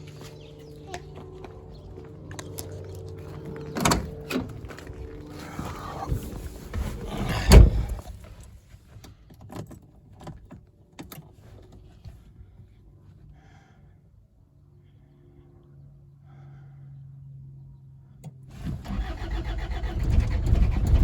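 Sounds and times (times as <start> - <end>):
diesel engine cranking: 0.0 - 8.5, 18.5 - 21.0.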